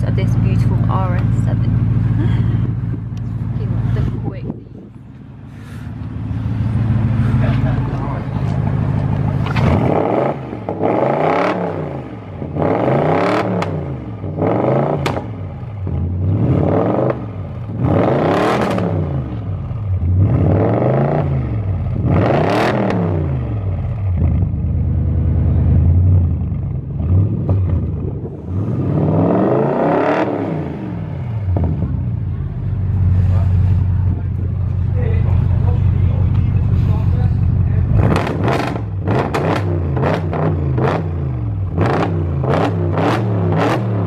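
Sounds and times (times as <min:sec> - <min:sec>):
car engine idling: 0:00.0 - 0:10.8, 0:23.4 - 0:29.4, 0:30.8 - 0:40.3
car engine revving: 0:00.0 - 0:44.0.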